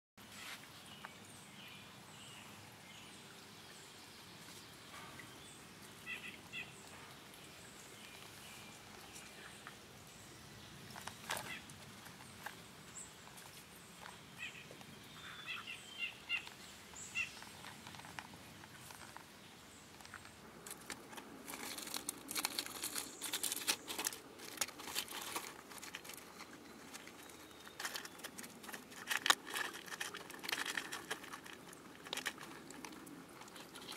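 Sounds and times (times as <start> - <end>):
faint outdoor hiss: 0.2 - 33.9
crackling shells: 19.9 - 33.9.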